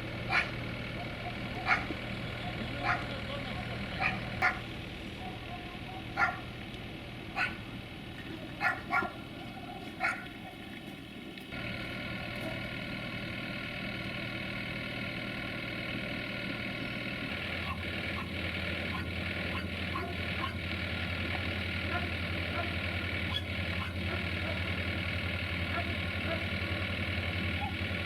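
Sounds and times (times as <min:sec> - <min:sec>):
diesel train engine rumble: 0:00.0 - 0:28.0
steady mechanical hum: 0:00.0 - 0:28.0
dog barking: 0:00.3 - 0:03.1, 0:04.0 - 0:06.5, 0:07.3 - 0:07.6, 0:08.5 - 0:10.6, 0:18.9 - 0:20.6, 0:21.3 - 0:24.7, 0:25.7 - 0:26.6.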